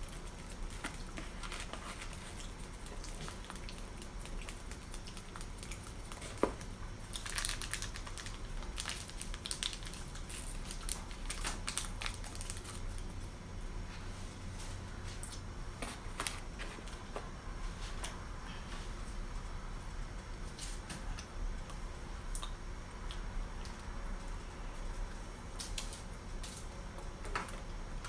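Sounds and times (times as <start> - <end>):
wet clicks and crinkles: 0.0 - 13.1, 21.1 - 24.4, 25.0 - 27.8
person chewing food: 0.1 - 11.3.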